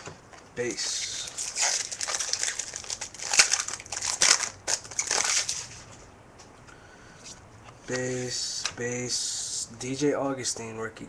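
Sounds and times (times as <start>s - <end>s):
trading card pack crinkling: 0.6s - 5.9s.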